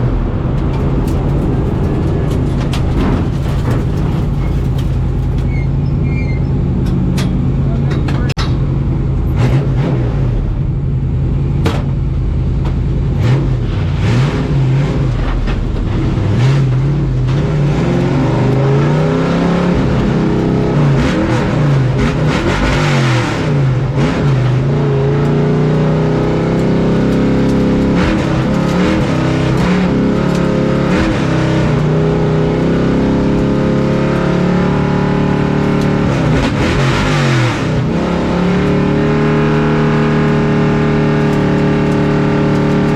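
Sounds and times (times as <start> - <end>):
rattles and clicks in cab: 0.0 - 8.7, 25.2 - 42.9
truck engine accelerating: 0.0 - 42.9.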